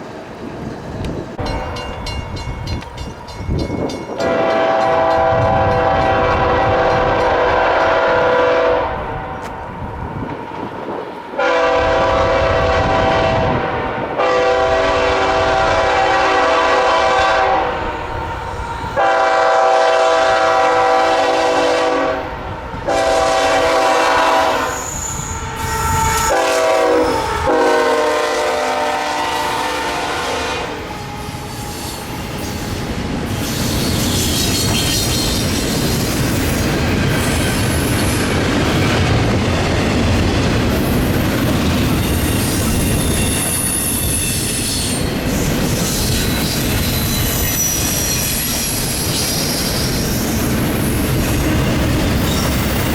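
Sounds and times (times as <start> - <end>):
train wheels on rails: 0.0 - 52.9
locomotive air horn blasts: 4.2 - 9.5, 11.4 - 18.2, 19.0 - 31.6
high squeal of wheels: 24.6 - 27.3, 31.0 - 38.2, 41.9 - 52.9.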